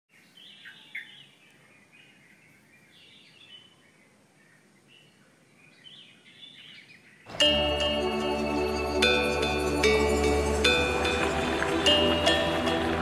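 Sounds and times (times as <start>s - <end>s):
birds chirping faintly: 0.1s - 11.1s.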